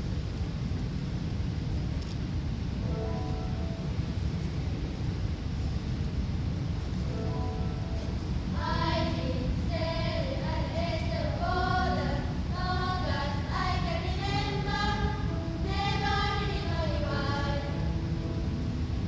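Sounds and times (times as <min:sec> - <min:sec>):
steady low rumble: 0:00.0 - 0:19.0
faint held notes: 0:02.8 - 0:19.0
choir singing: 0:08.1 - 0:18.8.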